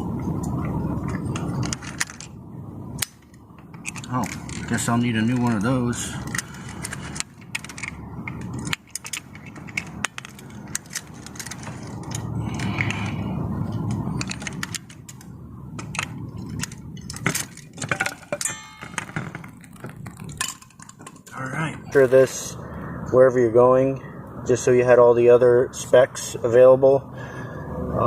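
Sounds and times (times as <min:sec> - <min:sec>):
low background noise: 0:00.0 - 0:28.0
metal tools clicking and rattling: 0:03.0 - 0:22.1.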